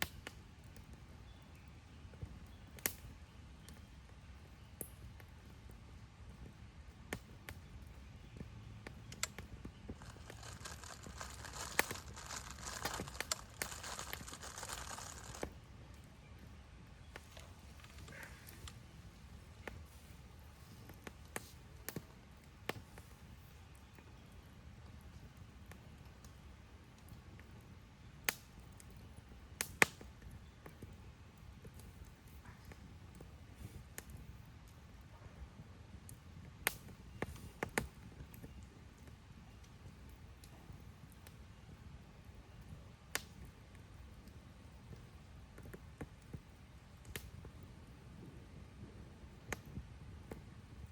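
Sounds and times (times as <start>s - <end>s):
campfire popping: 0.0s - 50.9s
wood fire crackling: 0.0s - 50.9s
dense crumpling crinkle: 10.0s - 15.5s.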